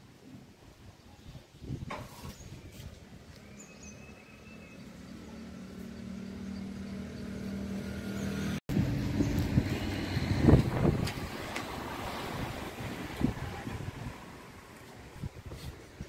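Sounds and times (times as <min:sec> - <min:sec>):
wind noise: 0:00.7 - 0:03.4, 0:08.7 - 0:16.0
vehicle engine running: 0:04.7 - 0:12.9.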